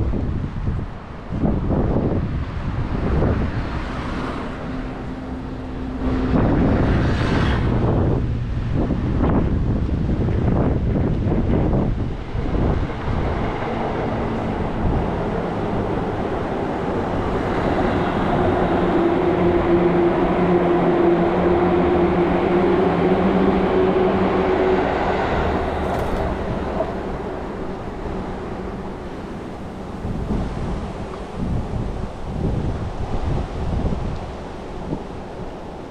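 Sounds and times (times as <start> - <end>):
wind gusts on microphone: 0.0 - 35.9
large vehicle passing: 3.0 - 9.7, 24.1 - 30.4.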